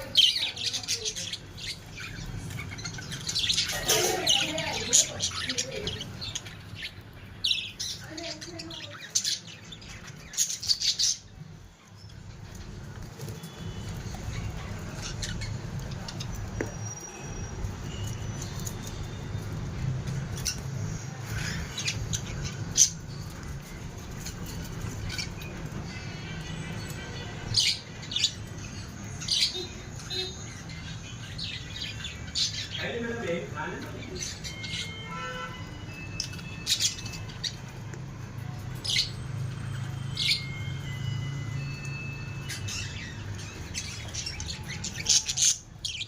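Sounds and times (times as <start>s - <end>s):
parrots chirping and squawking: 0.0s - 46.0s.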